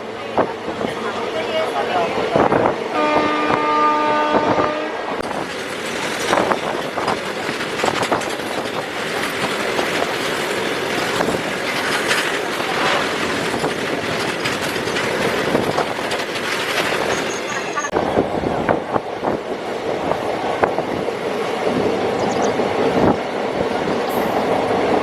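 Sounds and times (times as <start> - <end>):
train rumble and wheel clatter: 0.0 - 25.0
train horn blast: 2.9 - 5.2.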